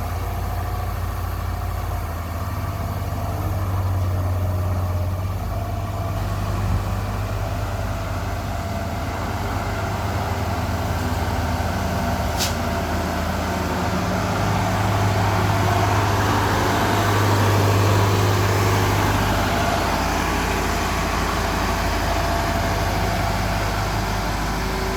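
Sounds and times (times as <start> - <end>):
diesel engine running: 0.0 - 24.9
brief high hiss: 12.3 - 12.7.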